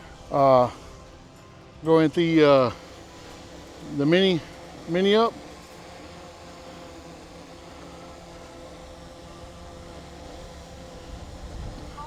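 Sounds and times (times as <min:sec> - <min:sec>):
drone propellers humming: 0:00.0 - 0:12.0
wind rumbling on microphone: 0:11.0 - 0:12.0.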